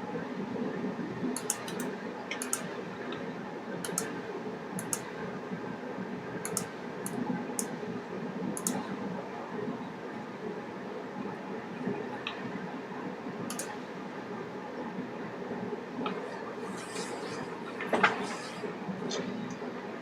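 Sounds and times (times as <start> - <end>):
low background noise: 0.0 - 20.0
small sharp clicks: 1.4 - 2.7, 3.8 - 4.2, 4.8 - 5.1, 6.4 - 7.7, 8.6 - 8.8, 13.5 - 13.8.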